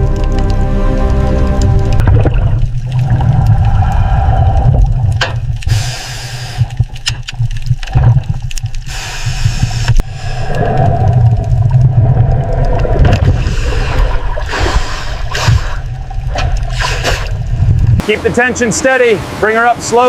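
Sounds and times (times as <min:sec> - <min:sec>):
churning water rumble: 0:00.0 - 0:20.0
gurgling hissing bubbles: 0:02.0 - 0:06.9, 0:08.8 - 0:17.7.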